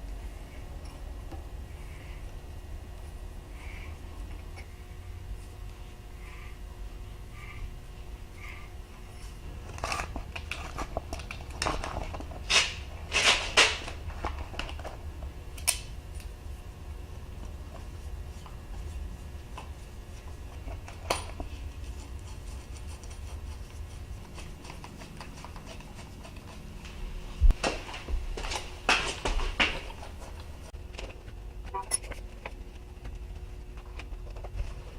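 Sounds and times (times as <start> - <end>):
steady low hum: 0.0 - 34.9
tools scraping and clinking: 31.0 - 32.5.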